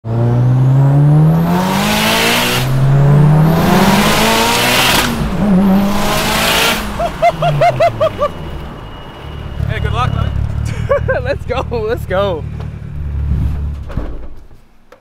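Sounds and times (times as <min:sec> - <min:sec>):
car engine accelerating hard: 0:00.0 - 0:08.9, 0:09.5 - 0:14.2
turbo whine: 0:02.6 - 0:13.4
exhaust chirps and pops: 0:09.6 - 0:14.5.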